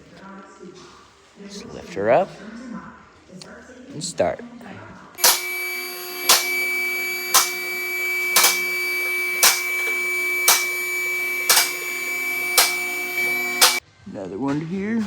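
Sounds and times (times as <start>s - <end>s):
hydraulic pump motor whining: 5.2s - 13.8s.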